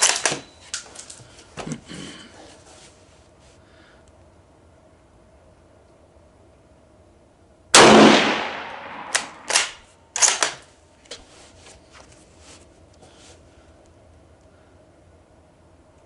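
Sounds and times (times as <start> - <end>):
rifle shot with echo: 7.8 - 10.5
rifle bolt clicking: 9.0 - 10.6.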